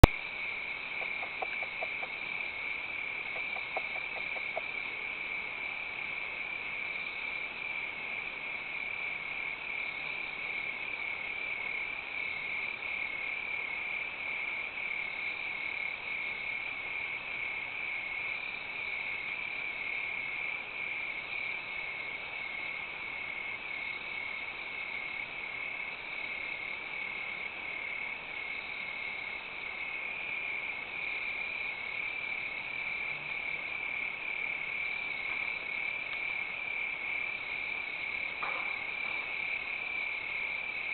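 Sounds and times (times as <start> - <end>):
insects chirping: 0.0 - 40.9.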